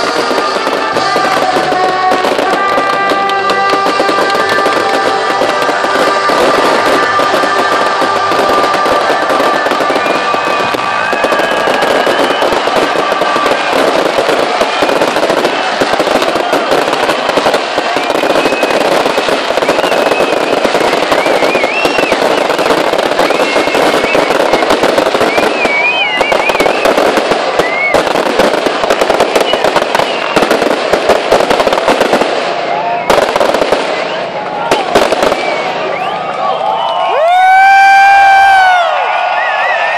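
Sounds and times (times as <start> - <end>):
music holding long notes: 0.0 - 26.3
fireworks crackling and banging: 0.0 - 39.9.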